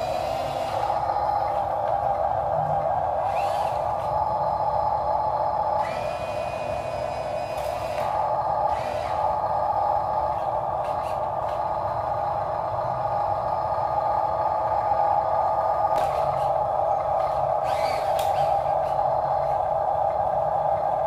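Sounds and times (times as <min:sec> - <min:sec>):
small electric motors whirring: 0:00.0 - 0:11.7, 0:15.9 - 0:20.3.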